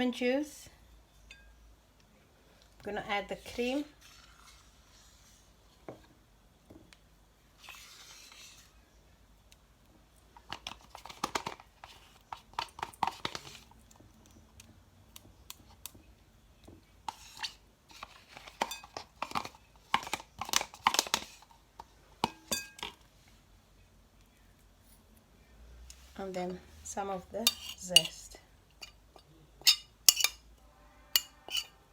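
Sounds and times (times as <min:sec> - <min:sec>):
utensils clinking against bowl: 0:22.2 - 0:23.0, 0:27.4 - 0:30.5, 0:31.2 - 0:31.8.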